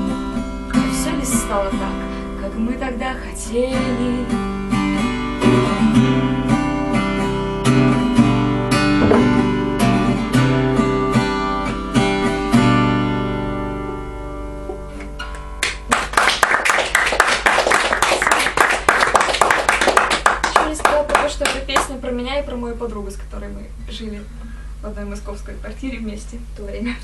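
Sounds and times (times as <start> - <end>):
acoustic guitar chords: 0.0 - 16.1
audience applause: 15.6 - 21.3.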